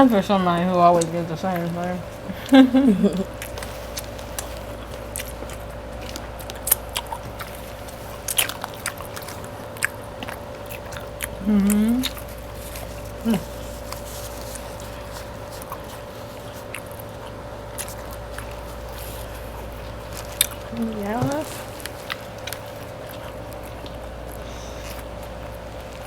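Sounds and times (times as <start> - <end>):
biting and chewing food: 0.0 - 26.0
faint steady hum: 0.0 - 26.0
person humming: 11.4 - 12.2, 13.2 - 13.5.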